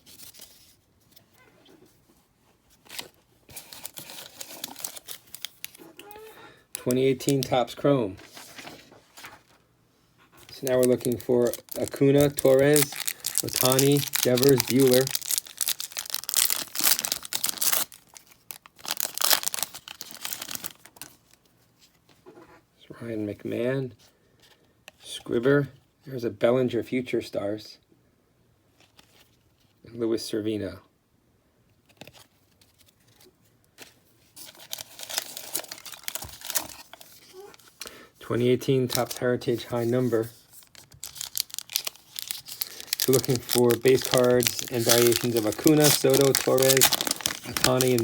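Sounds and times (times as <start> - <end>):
wrapper tearing and crinkling: 2.9 - 5.8, 10.5 - 21.4, 34.4 - 37.9, 38.9 - 48.0.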